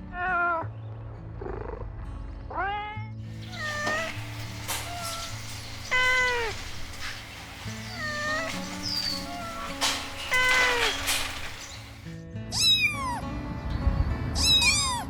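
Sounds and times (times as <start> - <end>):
kittens meowing: 3.4 - 12.0.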